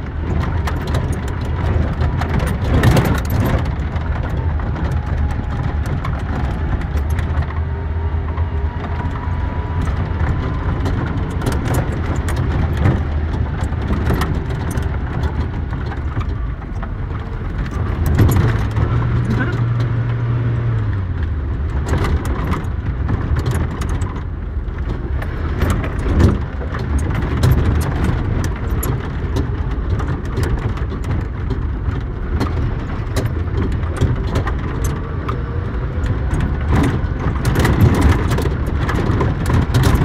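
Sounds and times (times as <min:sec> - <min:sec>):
car body knocking and rattling: 0:00.0 - 0:40.0
car engine running: 0:00.0 - 0:40.0.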